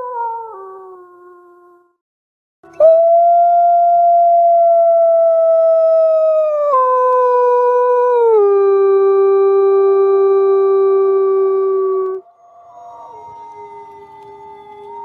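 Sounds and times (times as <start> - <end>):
wolf howling: 11.2 - 15.0.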